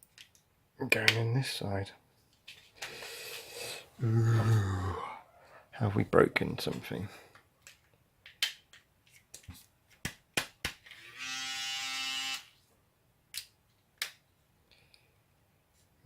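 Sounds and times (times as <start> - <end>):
electric shaver motor buzzing: 11.0 - 12.5.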